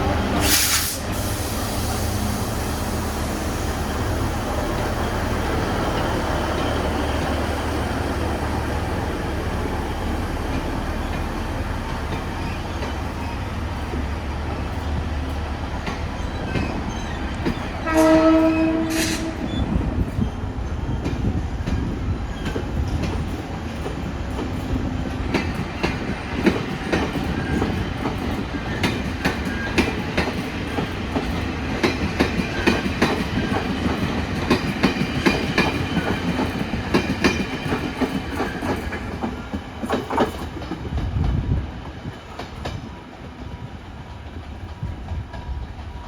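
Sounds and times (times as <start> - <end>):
train wheels clattering over rail joints: 10.4 - 46.0.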